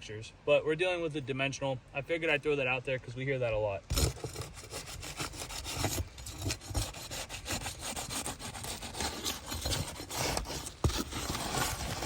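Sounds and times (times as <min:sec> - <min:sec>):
metal bar scraping under shingle: 0:03.9 - 0:12.0.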